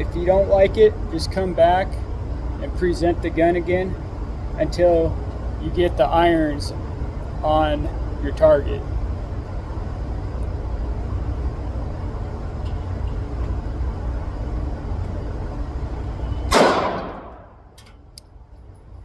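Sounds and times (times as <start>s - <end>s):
steady low rumble: 0.0s - 19.0s
pistol shot: 16.5s - 17.6s.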